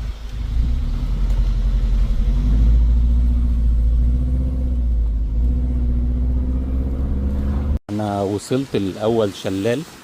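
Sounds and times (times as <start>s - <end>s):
engine rumbling under load: 0.0s - 7.8s.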